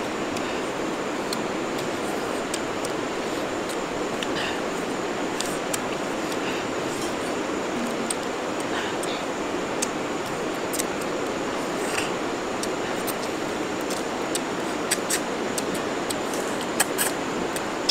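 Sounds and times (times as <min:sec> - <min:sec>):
steady background hiss: 0:00.0 - 0:17.9
people chewing and mouth smacking: 0:09.8 - 0:17.9.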